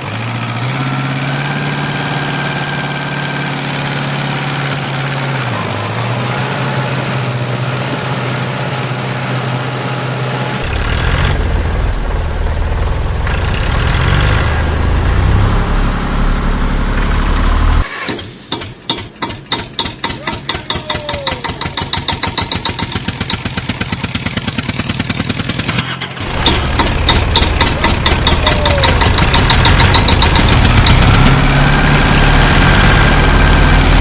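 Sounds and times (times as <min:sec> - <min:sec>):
engine idling: 0:00.0 - 0:17.8, 0:21.4 - 0:34.0
deep loud engine running: 0:00.0 - 0:17.9, 0:25.7 - 0:34.0.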